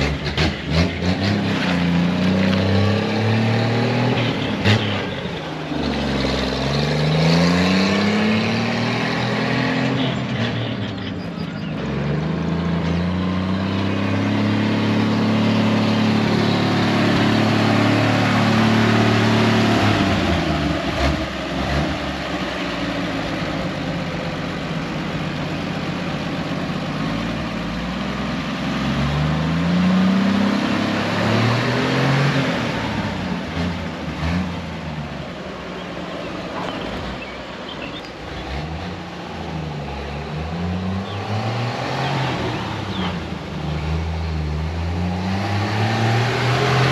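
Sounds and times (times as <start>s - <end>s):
road and wind noise: 0.0s - 46.9s
truck engine accelerating: 0.0s - 46.9s.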